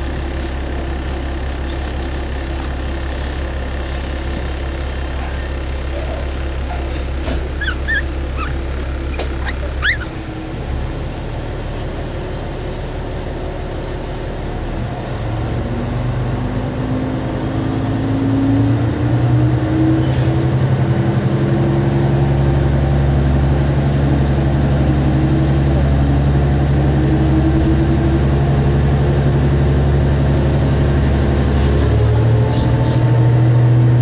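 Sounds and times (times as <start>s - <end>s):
diesel railcar engine: 0.0s - 34.0s.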